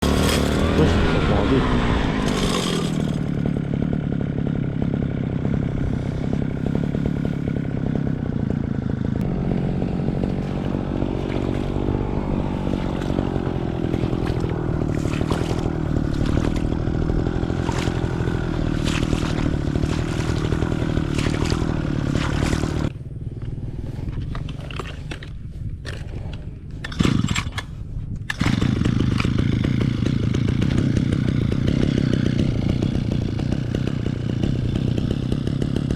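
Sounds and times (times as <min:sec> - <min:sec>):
clatter: 0:00.0 - 0:01.0, 0:02.2 - 0:03.8, 0:17.5 - 0:35.9
brush cutter engine running: 0:00.0 - 0:35.9.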